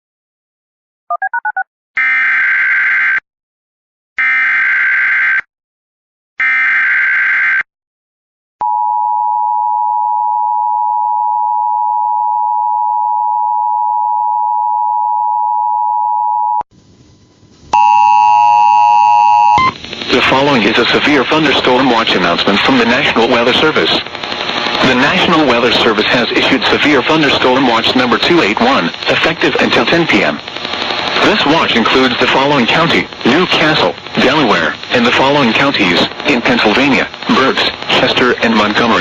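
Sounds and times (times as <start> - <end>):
steady warning alarm tone: 4.2 - 5.4, 6.4 - 7.6, 17.8 - 19.8
buzzy digital data bursts: 19.4 - 39.0.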